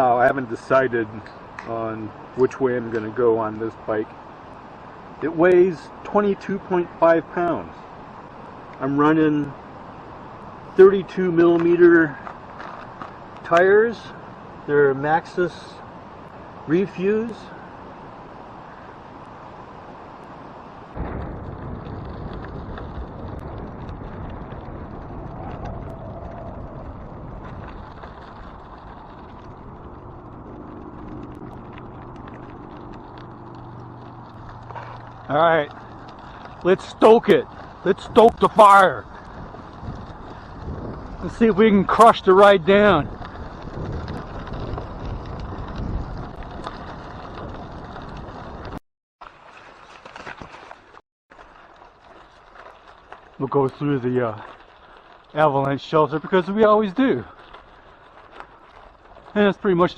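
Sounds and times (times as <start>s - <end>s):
bike tyres rumbling on gravel: 0.0s - 59.9s
wind on microphone: 21.0s - 36.7s, 37.3s - 48.8s.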